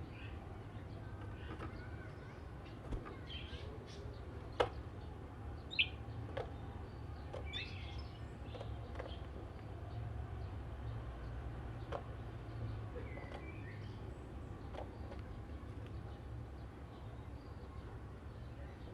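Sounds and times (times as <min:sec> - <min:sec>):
bird chirping: 0:05.0 - 0:06.1, 0:06.9 - 0:09.3.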